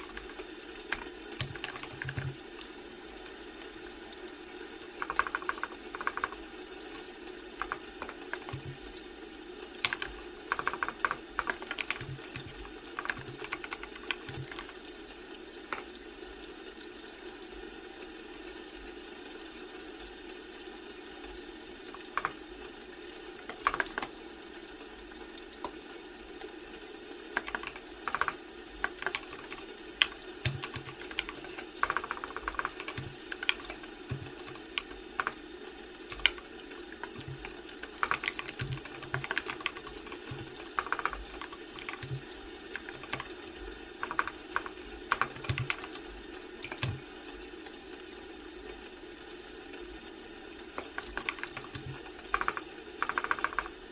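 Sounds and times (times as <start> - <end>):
keyboard typing: 0.0 - 2.4, 4.8 - 9.0, 9.8 - 14.9, 15.6 - 15.9, 21.9 - 22.5, 23.4 - 24.2, 27.3 - 47.1, 50.7 - 53.9
low background hum: 0.0 - 53.9.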